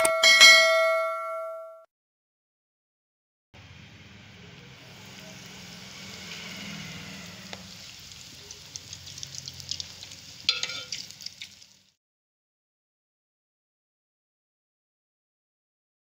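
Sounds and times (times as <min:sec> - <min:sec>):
bread sizzling in fat: 0:04.6 - 0:12.0
sharp crackles: 0:04.9 - 0:12.0
metal clink with ring: 0:10.5 - 0:11.0.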